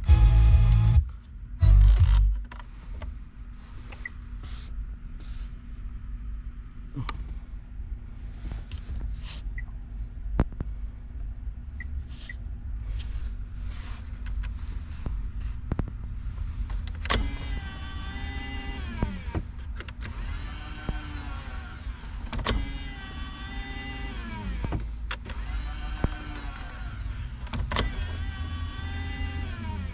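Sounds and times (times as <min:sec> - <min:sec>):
small electric motor whining: 0:17.2 - 0:19.4, 0:20.0 - 0:29.9.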